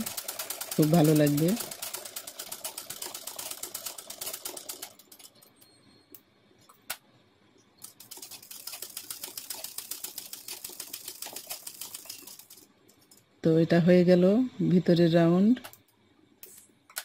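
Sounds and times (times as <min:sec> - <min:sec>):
sewing machine stitching: 0:00.0 - 0:05.5, 0:07.8 - 0:12.7.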